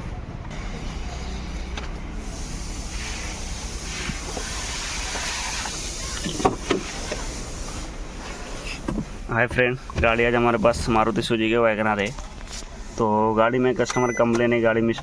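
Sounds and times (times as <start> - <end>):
car engine running: 0.0 - 11.5
hiss: 0.8 - 8.8.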